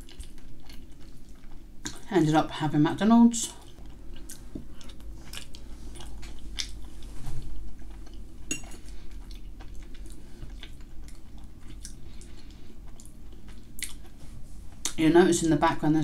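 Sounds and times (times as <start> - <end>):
person chewing: 0.0 - 2.1, 3.5 - 14.2
steady low hum: 0.0 - 16.0.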